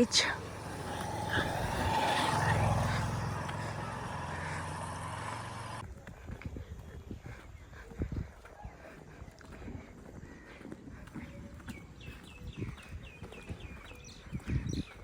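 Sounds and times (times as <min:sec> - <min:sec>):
vehicle passing by: 0:00.0 - 0:05.8.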